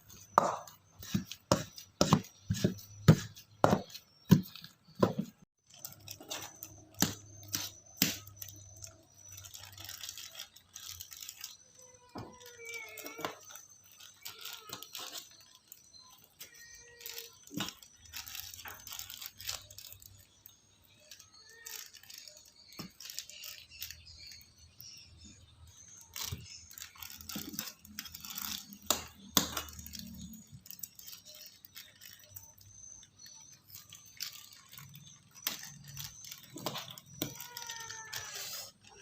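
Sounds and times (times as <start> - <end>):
kitchen items clinking and tapping: 0.0 - 20.2, 26.1 - 39.0.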